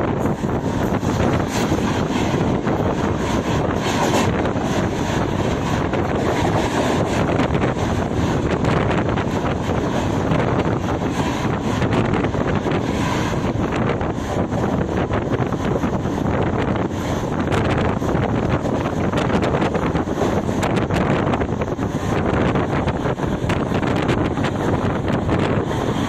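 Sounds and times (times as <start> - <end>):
train rushing along track: 0.0 - 26.0
wind buffeting microphone: 0.0 - 26.0.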